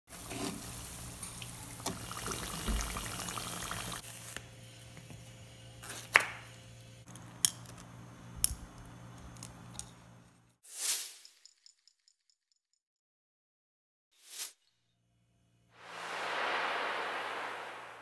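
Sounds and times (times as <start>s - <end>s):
banana sizzling in hot oil: 0.1s - 6.8s.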